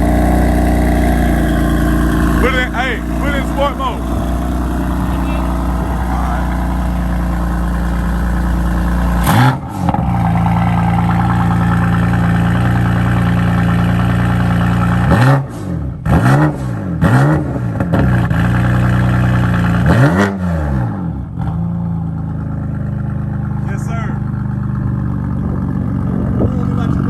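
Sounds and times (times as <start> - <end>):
car engine idling: 0.0 - 16.2, 21.1 - 27.0
engine free revs: 0.0 - 21.6.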